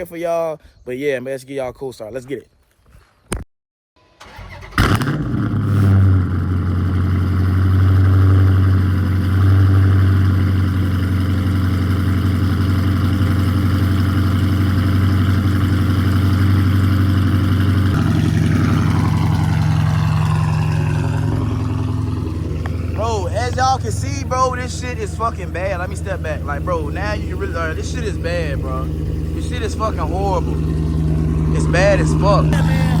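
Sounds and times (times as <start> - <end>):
car engine cranking: 4.2 - 33.0
car engine idling: 4.2 - 33.0.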